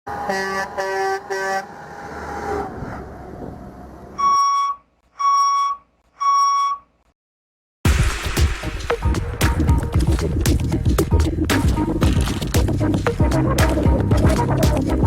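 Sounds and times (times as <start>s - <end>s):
truck horn blasts: 0.1s - 1.9s, 4.2s - 6.9s
vehicle noise: 0.1s - 6.6s, 9.2s - 15.0s
reversing alarm beeps: 4.2s - 6.9s.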